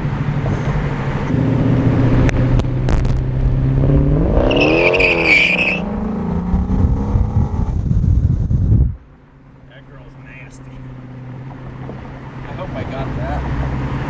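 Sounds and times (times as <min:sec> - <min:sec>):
sports car engine revving: 0:00.0 - 0:08.9
high squeal: 0:04.4 - 0:06.0.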